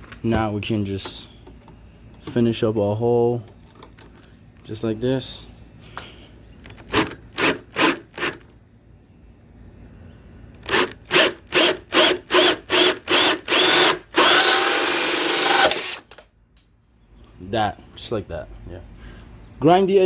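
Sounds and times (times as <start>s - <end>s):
power drill drilling sheet metal: 10.7s - 16.1s.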